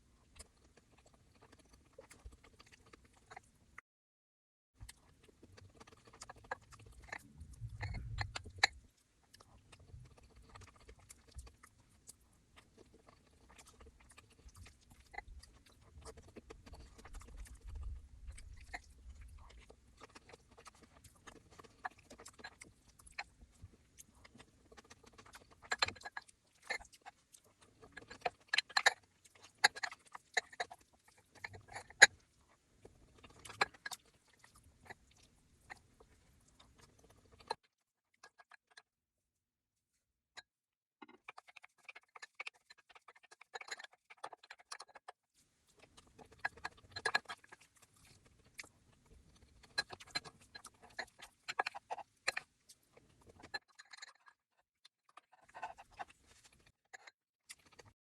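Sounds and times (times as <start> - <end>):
person chewing food: 0.0 - 3.8, 4.8 - 38.9, 41.0 - 54.4, 55.0 - 58.0.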